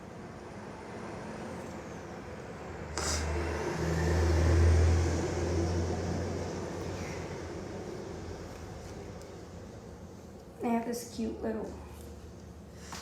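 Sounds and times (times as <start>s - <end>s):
motor vehicle passing: 0.6s - 9.2s.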